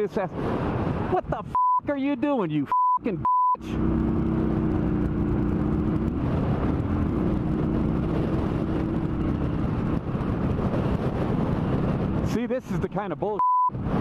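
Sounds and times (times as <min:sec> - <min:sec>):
constant rushing noise: 0:00.0 - 0:14.0
motorcycle engine running: 0:03.6 - 0:12.3.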